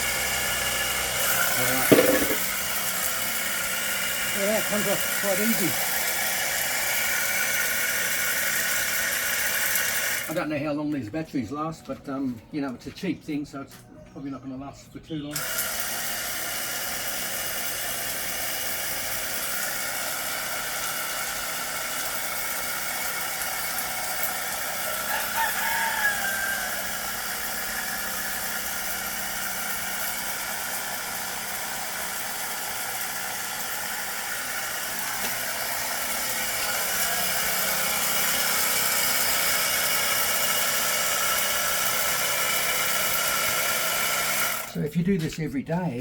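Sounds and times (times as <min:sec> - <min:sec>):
pressure washer pump whining: 0:00.0 - 0:10.5, 0:15.3 - 0:44.8
rooster crowing: 0:24.8 - 0:27.2.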